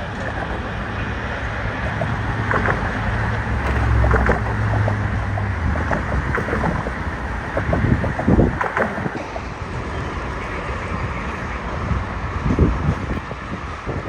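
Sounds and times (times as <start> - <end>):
diesel locomotive engine drone: 0.0 - 14.0
wind buffeting microphone: 0.0 - 14.0
clicks: 1.7 - 9.6.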